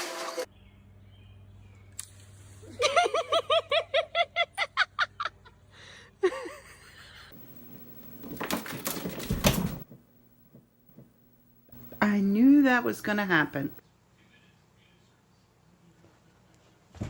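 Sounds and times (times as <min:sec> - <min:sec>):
person laughing hard: 0:02.7 - 0:05.6, 0:06.2 - 0:07.3.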